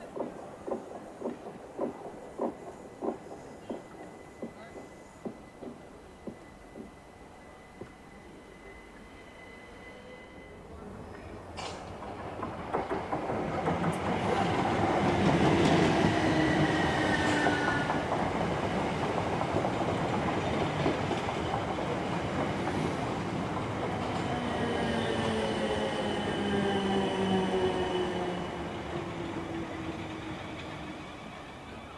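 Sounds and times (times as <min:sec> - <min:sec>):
train passing: 0:00.0 - 0:31.9
wheels clicking over rail joints: 0:11.5 - 0:16.1.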